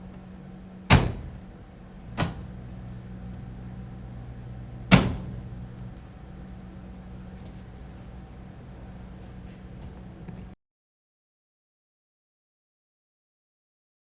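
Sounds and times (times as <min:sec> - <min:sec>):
dryer low hum: 0:00.0 - 0:10.6
dryer door banging shut: 0:00.9 - 0:02.6, 0:04.8 - 0:05.6
dryer click: 0:00.9 - 0:04.1, 0:04.8 - 0:06.2.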